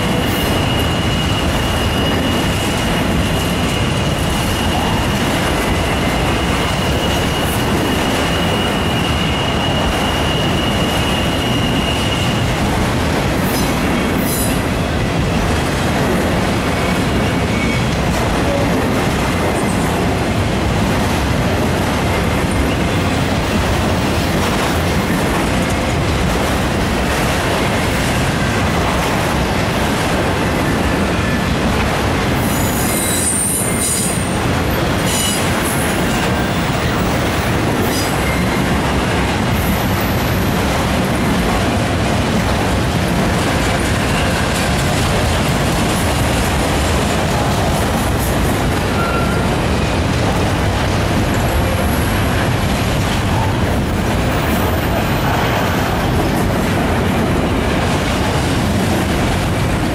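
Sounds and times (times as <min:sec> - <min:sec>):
steel wheels rushing on rails: 0:00.0 - 0:59.9
high-pitched wheel squeals: 0:05.9 - 0:12.5, 0:32.4 - 0:34.4, 0:48.9 - 0:49.6.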